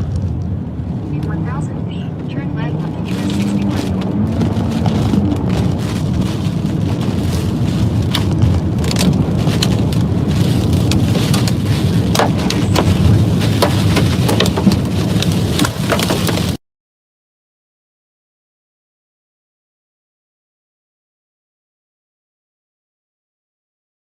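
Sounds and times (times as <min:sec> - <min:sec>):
heavy rain pelting a car: 0:00.0 - 0:16.6
low rumble: 0:00.0 - 0:16.6.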